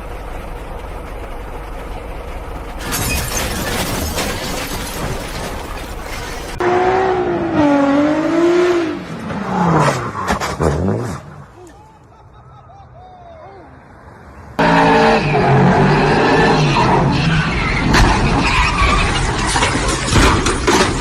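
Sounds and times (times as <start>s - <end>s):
car road noise: 0.0s - 21.0s
crash with shattering: 2.8s - 6.6s, 17.8s - 21.0s.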